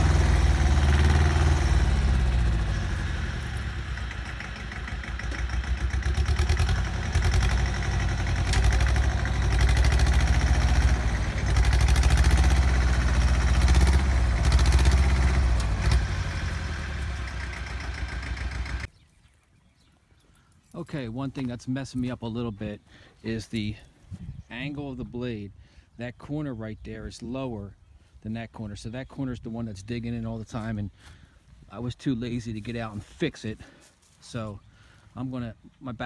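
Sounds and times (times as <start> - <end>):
clatter: 0.0 - 18.9
garden tractor engine running: 0.0 - 18.9.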